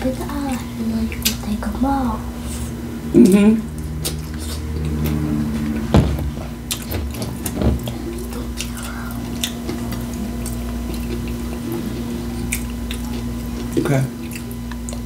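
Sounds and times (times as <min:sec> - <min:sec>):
steady low hum: 0:00.0 - 0:15.0
person chewing crunchy food: 0:03.7 - 0:15.0.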